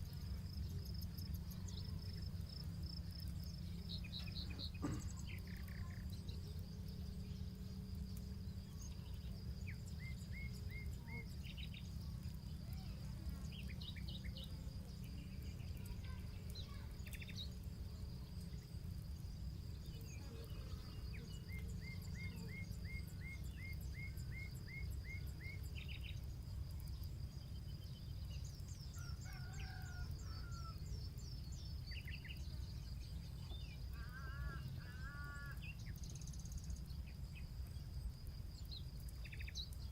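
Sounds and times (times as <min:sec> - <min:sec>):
campfire crackles: 0:00.0 - 0:39.9
high insect drone: 0:00.0 - 0:39.9
small birds chirping: 0:00.0 - 0:39.9.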